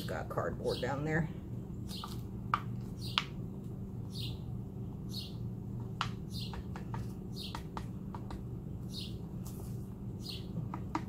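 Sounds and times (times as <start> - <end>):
steady low hum: 0.0 - 11.0
bird chirping: 1.8 - 2.2, 2.9 - 3.4, 4.0 - 5.5, 6.2 - 7.7, 8.8 - 9.2, 10.2 - 10.8.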